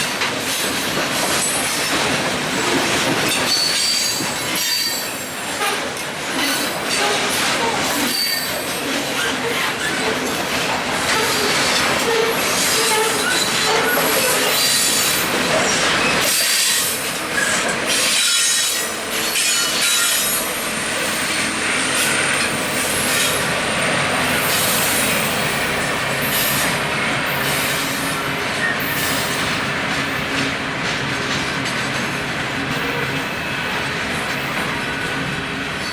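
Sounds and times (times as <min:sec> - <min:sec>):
train cars rumbling and clattering: 0:00.0 - 0:35.9
train wheels squealing: 0:03.3 - 0:10.4, 0:11.0 - 0:23.5, 0:24.1 - 0:29.8.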